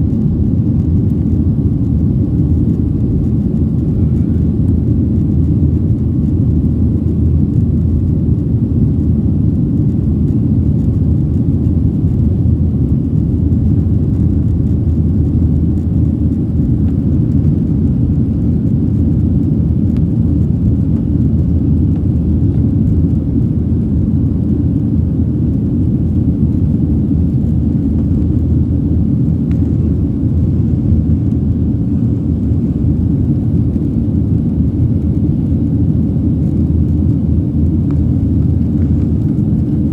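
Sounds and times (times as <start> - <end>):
jet engines rumbling in cabin: 0.0 - 39.9.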